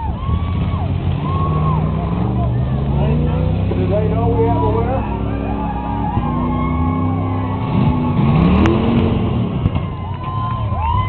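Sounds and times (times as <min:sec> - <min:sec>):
car engines revving: 0:00.0 - 0:11.0
sharp crack: 0:07.7 - 0:10.4.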